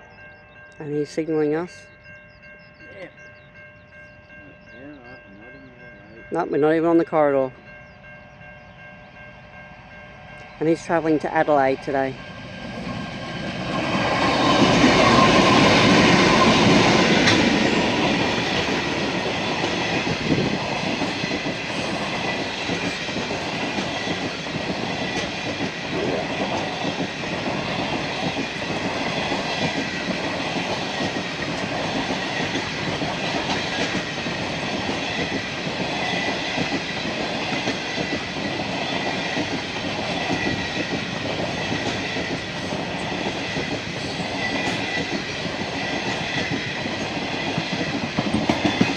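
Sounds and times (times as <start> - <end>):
passenger train passing: 0.0 - 48.9
wheels clickety-clack over rail joints: 12.5 - 48.9.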